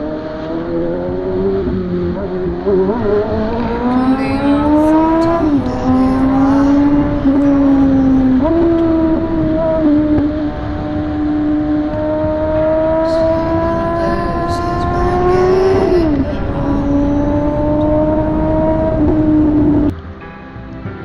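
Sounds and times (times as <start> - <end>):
motorcycle engine accelerating: 0.0 - 19.9
steady rushing noise: 0.0 - 21.0.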